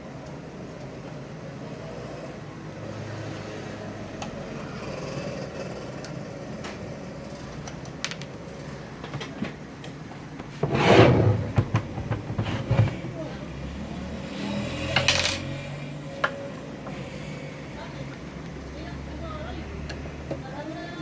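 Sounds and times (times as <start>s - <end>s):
loud metal scrape: 10.6s - 13.1s.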